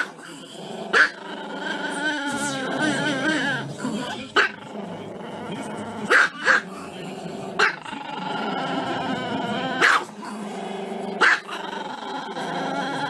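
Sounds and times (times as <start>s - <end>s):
dog barking: 0.9s - 1.2s, 4.4s - 4.6s, 6.1s - 6.7s, 7.6s - 7.8s, 9.8s - 10.1s, 11.2s - 11.6s.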